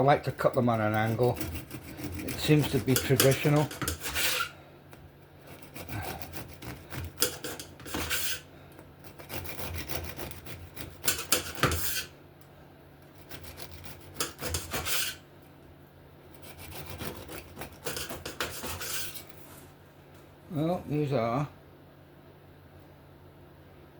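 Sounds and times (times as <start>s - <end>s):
knife sawing through biscotti: 0.0s - 4.6s, 5.4s - 12.1s, 13.1s - 15.2s, 16.3s - 19.6s.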